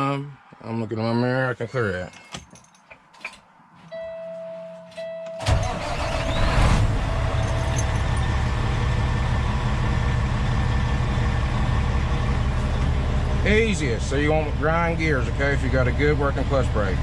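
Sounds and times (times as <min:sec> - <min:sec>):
diesel truck engine starting and idling: 0:05.4 - 0:17.0.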